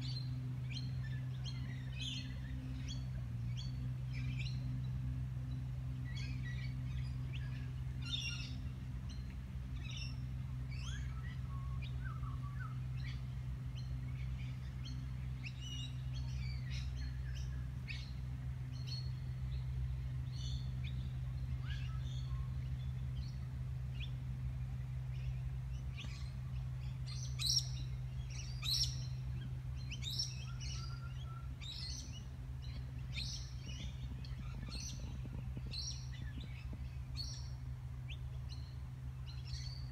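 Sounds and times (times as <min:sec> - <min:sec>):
birds chirping: 0:00.0 - 0:39.9
steady low hum: 0:00.0 - 0:39.9.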